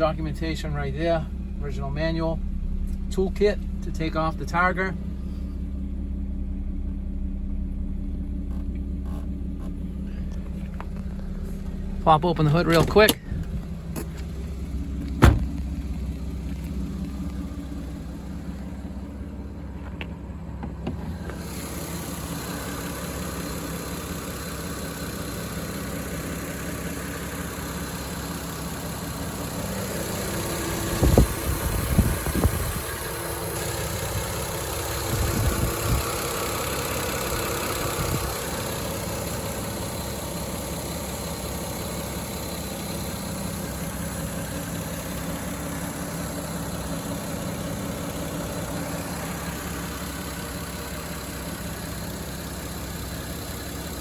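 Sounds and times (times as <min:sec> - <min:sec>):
car engine idling: 0:00.0 - 0:54.0
low knocks: 0:15.0 - 0:15.9.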